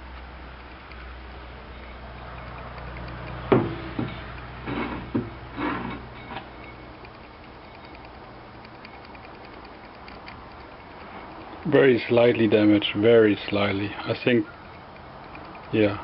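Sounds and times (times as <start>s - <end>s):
knocks of engine parts: 3.0s - 6.5s.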